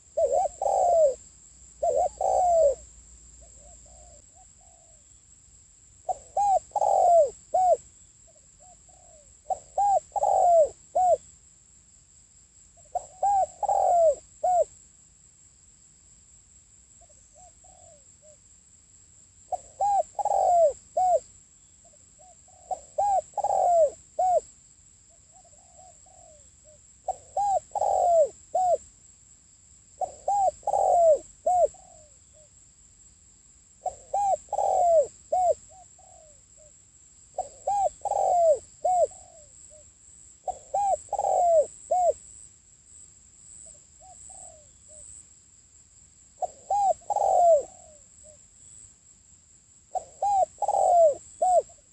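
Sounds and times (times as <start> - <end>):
dove cooing: 0.0 - 1.2, 1.8 - 5.0, 6.0 - 11.2, 12.9 - 14.8, 17.1 - 18.4, 19.5 - 21.2, 22.2 - 24.5, 25.3 - 28.8, 30.0 - 32.5, 33.8 - 36.7, 37.3 - 39.8, 40.4 - 42.2, 44.0 - 45.1, 46.4 - 48.4, 49.9 - 51.9.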